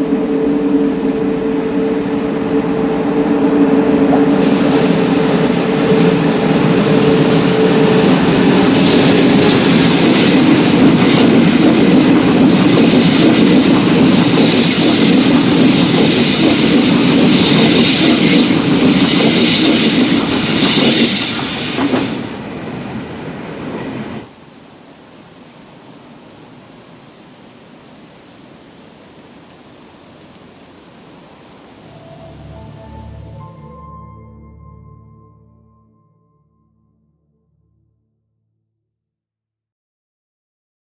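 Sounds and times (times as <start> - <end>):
insects chirping: 0.0 - 21.7, 24.2 - 33.7
train passing with wheel noise: 0.0 - 34.1
steady tones: 31.7 - 37.1.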